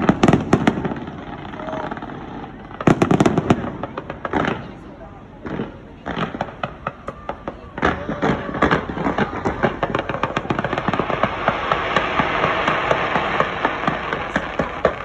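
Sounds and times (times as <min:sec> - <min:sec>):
fireworks popping and crackling: 0:00.0 - 0:15.0.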